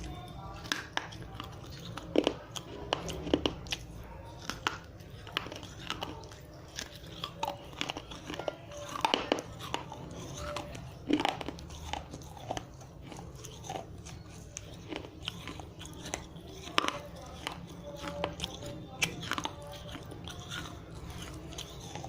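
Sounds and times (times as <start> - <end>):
teeth crunching dry clay: 0.0 - 22.0.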